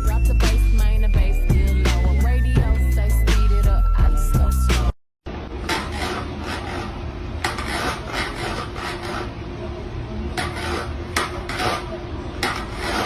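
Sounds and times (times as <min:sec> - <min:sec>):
scratchy rasping strokes: 0:05.7 - 0:09.4, 0:10.4 - 0:13.0.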